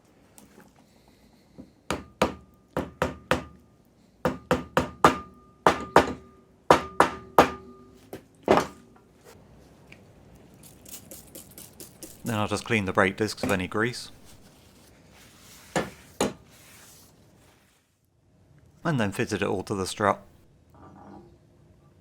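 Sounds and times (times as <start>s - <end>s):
hammer striking metal: 4.3s - 8.0s.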